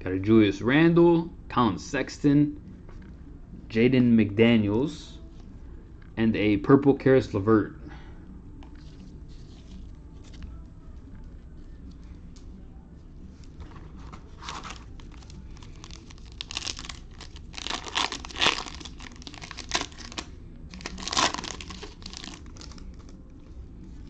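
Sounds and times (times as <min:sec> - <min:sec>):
wrapper tearing and crinkling: 0:14.3 - 0:23.1.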